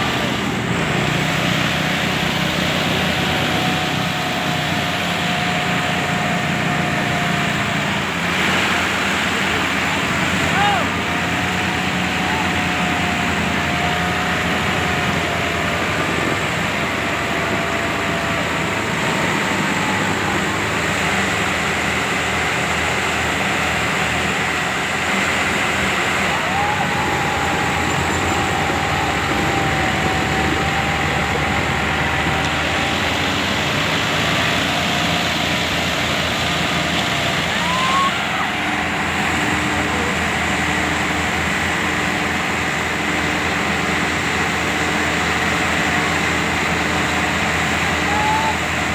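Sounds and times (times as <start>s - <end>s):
tractor engine running: 0.0s - 48.9s
faint wavering whistle: 26.3s - 32.5s, 37.5s - 38.6s.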